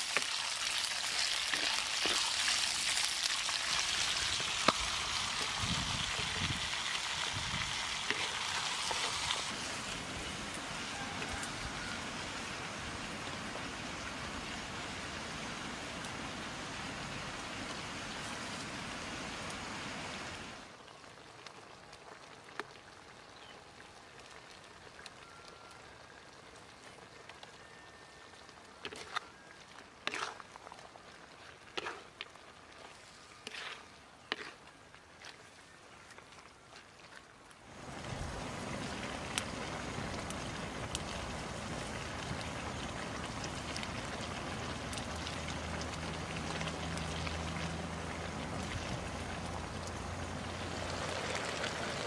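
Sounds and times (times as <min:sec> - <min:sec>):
vegetables sizzling in a pan: 0:00.0 - 0:14.1
spatula scraping a pan: 0:30.0 - 0:30.4, 0:31.7 - 0:32.1, 0:33.3 - 0:34.7.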